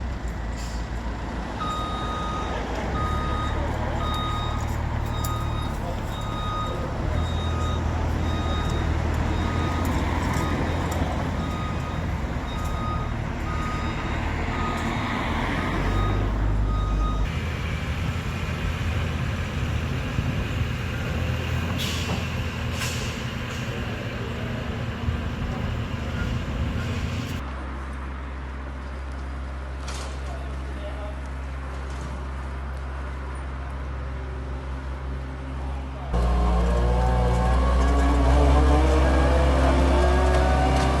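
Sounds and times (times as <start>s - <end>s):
heavy vehicle engine running: 0.0s - 41.0s
reversing alarm beeping: 1.6s - 17.3s.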